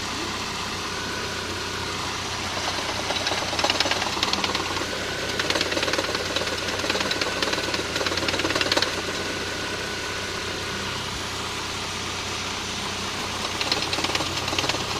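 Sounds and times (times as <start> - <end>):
car engine knocking: 1.5 - 10.4, 13.1 - 14.9.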